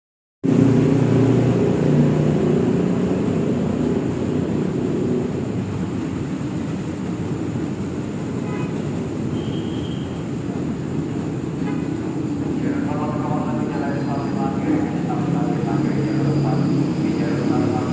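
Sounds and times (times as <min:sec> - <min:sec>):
train rumbling: 0:00.4 - 0:17.9
train humming tones: 0:07.6 - 0:17.9.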